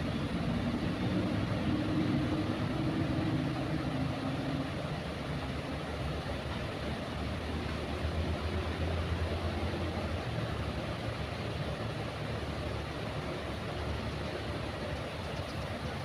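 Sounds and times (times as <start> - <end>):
train rumbling past: 0.0 - 6.2.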